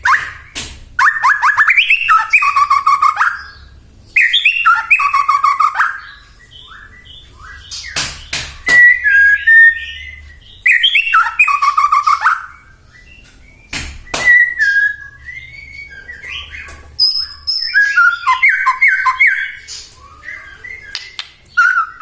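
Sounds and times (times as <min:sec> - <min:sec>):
bird singing whistled phrases: 0:00.0 - 0:22.0
sharp cracks: 0:07.7 - 0:09.3, 0:13.7 - 0:14.7.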